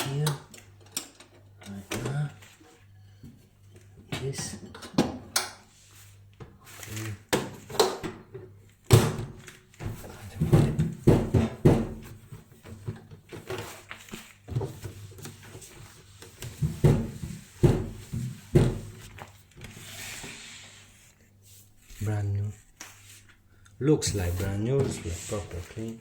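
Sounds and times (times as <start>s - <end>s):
hard parts knocking in microwave: 10.2s - 12.3s.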